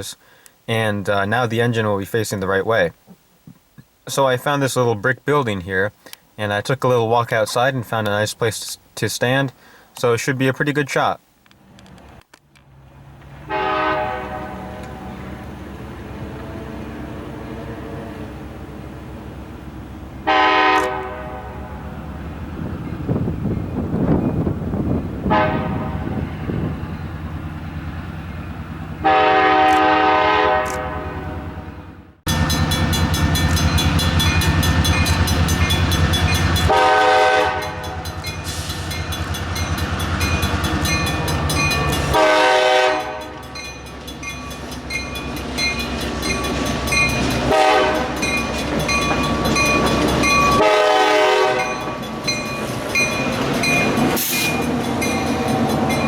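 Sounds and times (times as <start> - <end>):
diesel locomotive engine: 11.4 - 56.0
train horn blasts: 13.4 - 15.6, 20.2 - 22.0, 25.2 - 26.5, 29.0 - 31.7, 32.3 - 38.2, 42.1 - 43.5, 47.4 - 48.4, 50.5 - 52.0.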